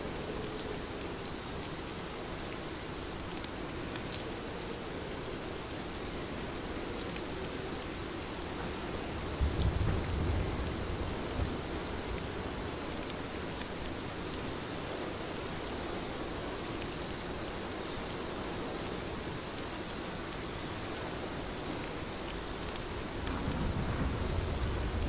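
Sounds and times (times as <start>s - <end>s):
heavy rain falling: 0.1s - 25.0s
low rumble of thunder: 8.9s - 13.0s, 23.1s - 25.0s.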